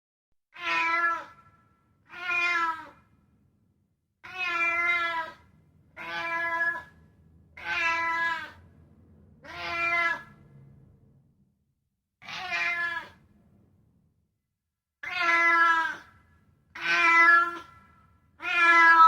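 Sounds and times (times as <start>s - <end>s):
cat meowing: 0.5s - 1.4s, 2.1s - 3.0s, 4.2s - 5.4s, 6.0s - 6.9s, 7.6s - 8.6s, 9.4s - 10.4s, 12.2s - 13.2s, 15.0s - 16.1s, 16.8s - 19.0s.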